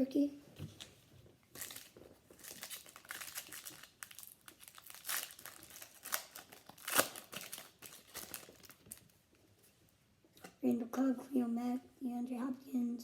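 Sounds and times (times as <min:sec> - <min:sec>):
foil wrapper tearing and crinkling: 0:01.5 - 0:09.1.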